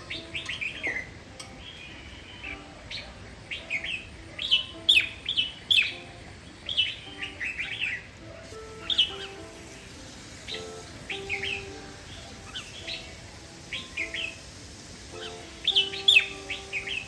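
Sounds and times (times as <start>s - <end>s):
bird singing whistled notes: 0.0s - 17.0s.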